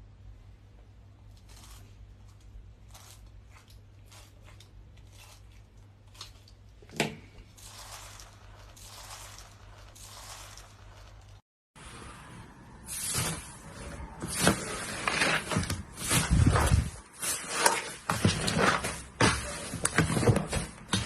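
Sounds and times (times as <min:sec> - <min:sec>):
slime squishing and crackling: 0:07.6 - 0:11.4.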